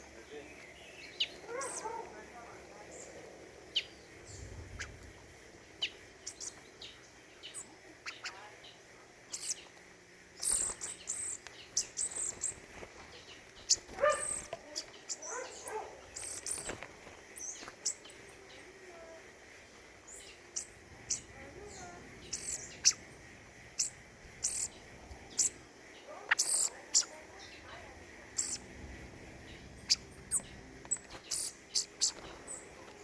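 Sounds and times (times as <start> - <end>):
songbirds chirping: 0.0 - 33.0
lower-pitched bird call: 0.9 - 2.1, 20.1 - 32.6.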